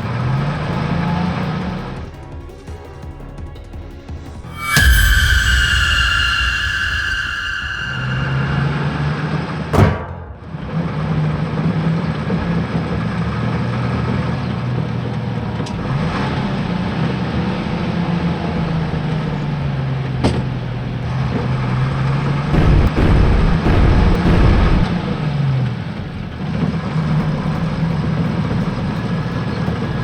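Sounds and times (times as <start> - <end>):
heavy low rumble: 4.5 - 9.7, 22.3 - 26.4
short sharp sound: 4.5 - 9.7, 22.5 - 26.4.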